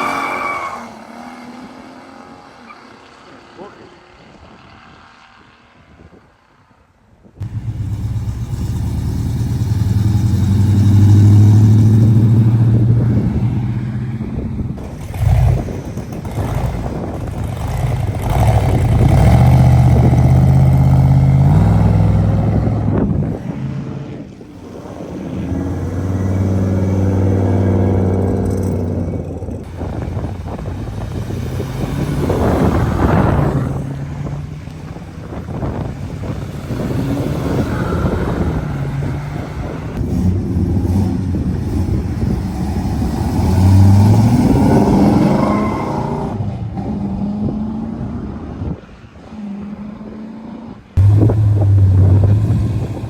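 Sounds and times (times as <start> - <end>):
car engine revving hard: 7.4 - 53.0.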